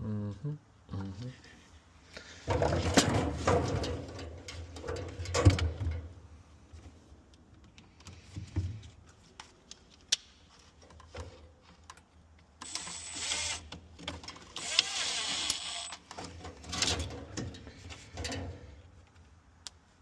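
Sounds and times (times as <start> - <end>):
parts clicking and knocking: 2.4 - 6.2, 13.6 - 19.8.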